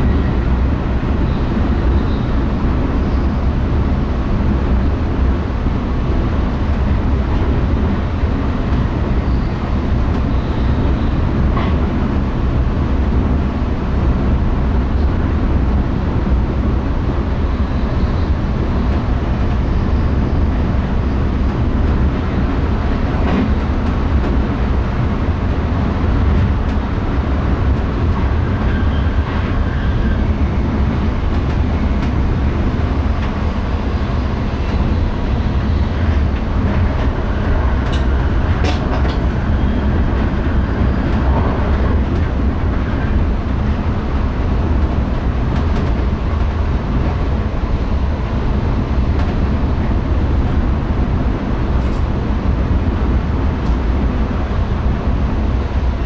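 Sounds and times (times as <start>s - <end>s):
train wheels rumbling: 0.0s - 56.0s.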